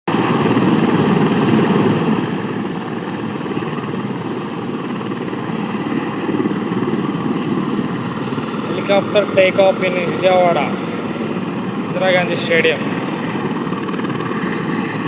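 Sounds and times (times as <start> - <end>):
helicopter engine and rotor drone: 0.1 - 15.0.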